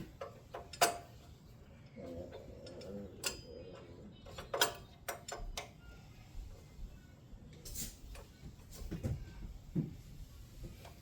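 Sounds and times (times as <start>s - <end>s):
metal tools clicking and knocking: 0.0s - 1.4s, 2.3s - 5.8s.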